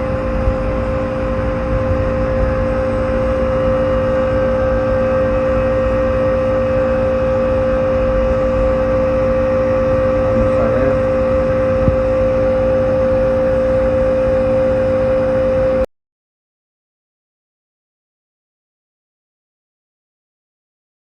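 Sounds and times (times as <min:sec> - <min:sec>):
rushing air noise: 0:00.0 - 0:15.6
air conditioner compressor hum: 0:00.0 - 0:15.9.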